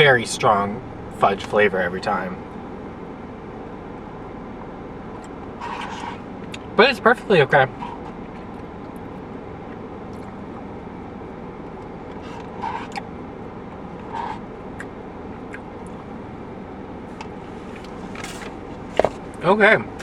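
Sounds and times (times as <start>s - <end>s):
low background hum: 0.0s - 20.0s
scraping handling sounds: 17.2s - 19.4s.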